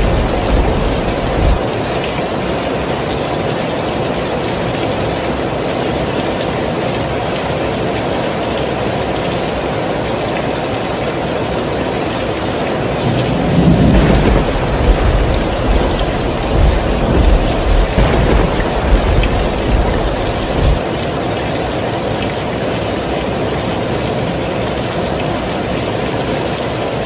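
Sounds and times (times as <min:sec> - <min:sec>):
deep low rumble: 0:00.0 - 0:01.6, 0:13.0 - 0:20.8
heavy rain falling: 0:00.0 - 0:27.0.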